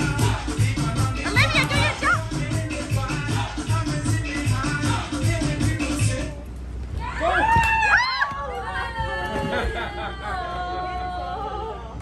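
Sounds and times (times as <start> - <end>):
upbeat dance music: 0.0 - 6.4.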